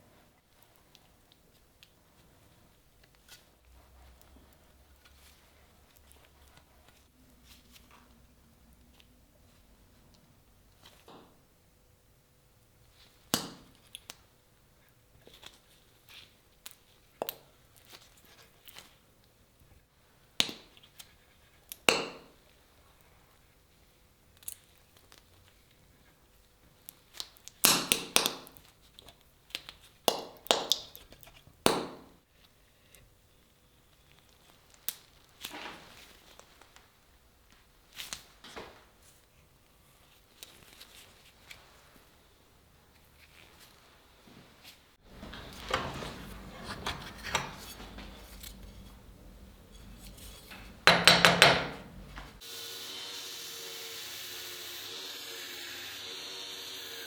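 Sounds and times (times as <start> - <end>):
metal knocks and clinks: 45.1 - 52.4
sharp knocks: 50.2 - 52.4
hard taps on metal: 50.5 - 52.4.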